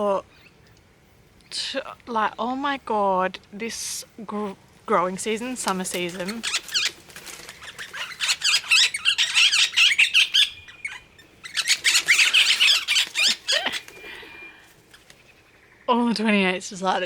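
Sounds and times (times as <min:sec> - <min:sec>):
parrots chirping and squawking: 0:05.2 - 0:15.9.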